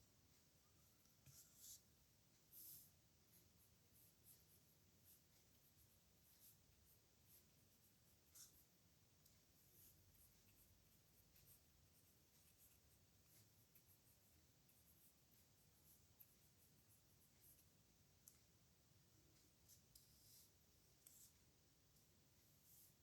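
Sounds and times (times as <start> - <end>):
pen scratching on paper: 1.2 - 1.8, 2.5 - 8.8, 9.5 - 17.7, 19.7 - 21.4.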